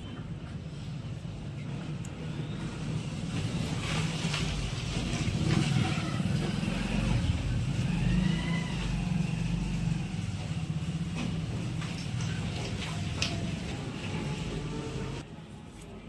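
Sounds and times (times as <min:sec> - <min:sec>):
motor vehicle engine running: 0:02.8 - 0:15.2.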